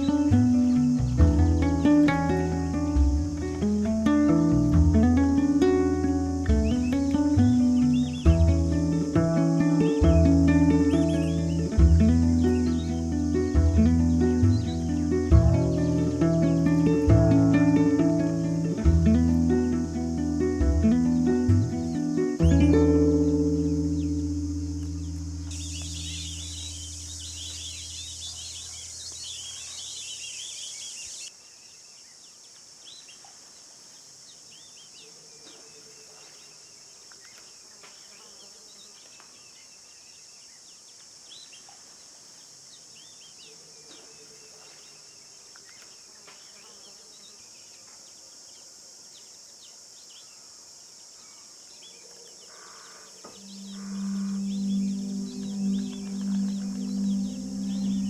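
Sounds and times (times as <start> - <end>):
bird calls: 0.0 - 3.6, 4.3 - 31.3, 51.2 - 58.0
music: 0.0 - 27.7, 53.4 - 58.0
insect drone: 0.0 - 58.0.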